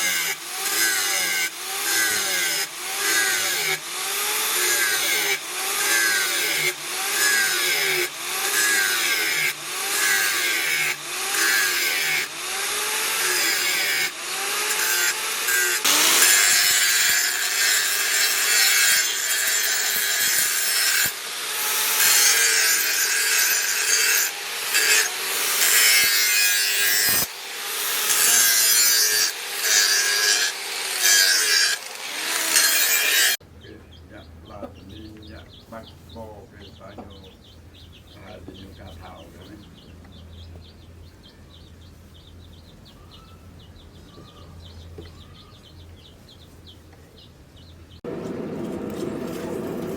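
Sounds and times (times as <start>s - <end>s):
hand tool scraping: 0.0s - 33.4s.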